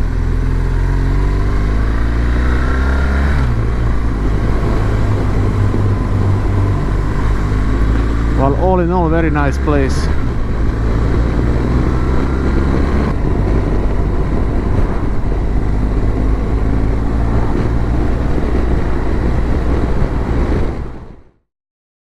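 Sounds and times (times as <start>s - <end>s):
motorcycle engine running: 0.0s - 20.0s
wind noise on microphone: 1.1s - 8.4s, 9.4s - 21.3s.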